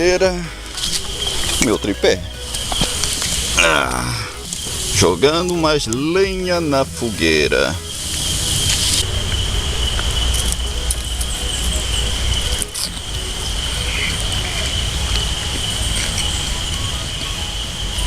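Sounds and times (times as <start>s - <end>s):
campfire crackling and snapping: 0.0s - 18.0s
insects chirring: 0.0s - 18.0s.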